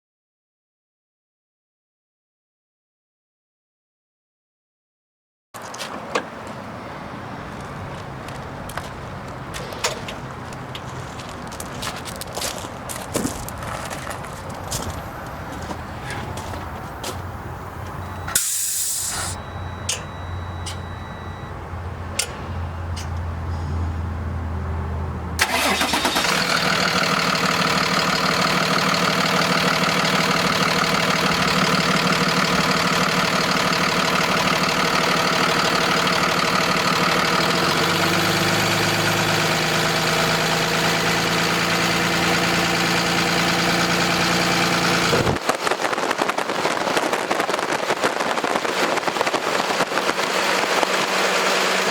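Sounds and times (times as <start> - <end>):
diesel truck engine idling: 12.7 - 24.3, 25.4 - 45.9.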